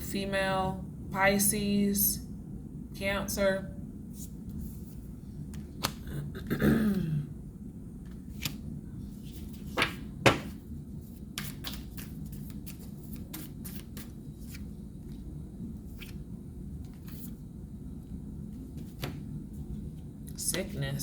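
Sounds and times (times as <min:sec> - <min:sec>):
cards tapping on a table: 0:09.8 - 0:10.6.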